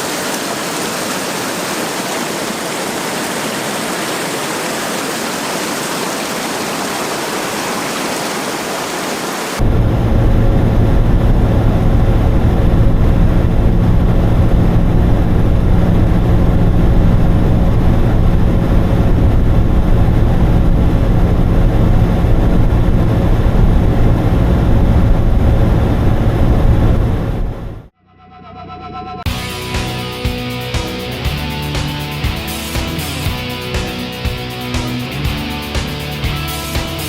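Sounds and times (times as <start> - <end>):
dense rushing noise: 0.0 - 27.9
vehicle engine running: 9.6 - 27.9, 29.3 - 37.0.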